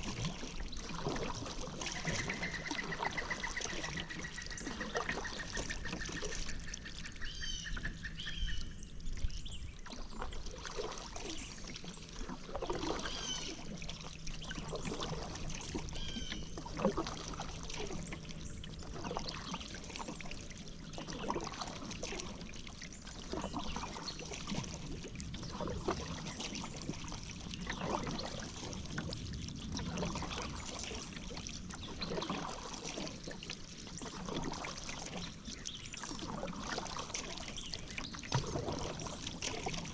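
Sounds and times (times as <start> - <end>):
paddle strokes in water: 0.0 - 39.9
water splashing and dripping: 0.0 - 39.9.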